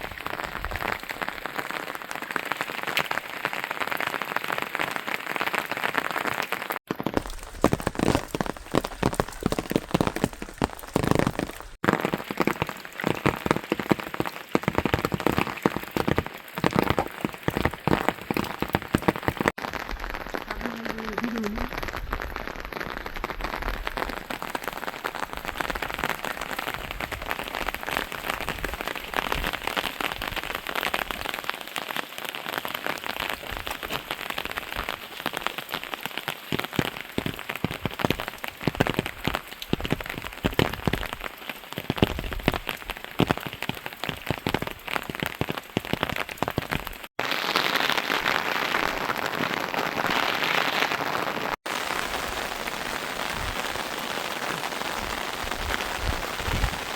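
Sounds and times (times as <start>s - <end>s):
steady rain: 0.0s - 56.9s
close water drips: 7.1s - 19.5s, 33.3s - 47.1s.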